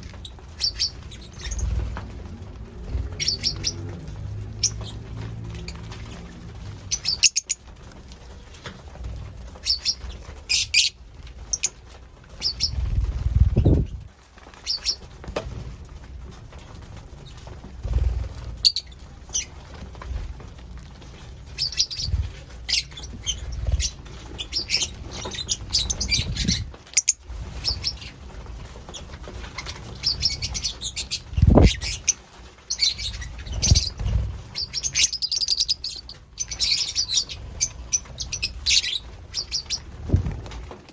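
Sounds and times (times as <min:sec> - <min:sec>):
lovebirds chirping: 0:00.0 - 0:02.0, 0:02.9 - 0:07.6, 0:09.5 - 0:11.8, 0:12.4 - 0:12.9, 0:21.5 - 0:28.2, 0:28.9 - 0:40.3
wing flutters: 0:00.0 - 0:40.9.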